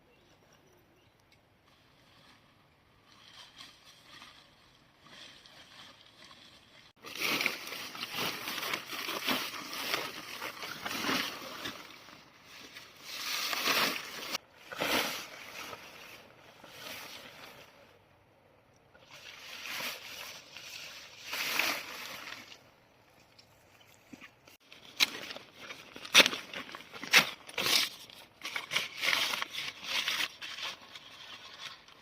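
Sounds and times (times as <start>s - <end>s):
water sloshing and splashing: 3.0s - 12.0s.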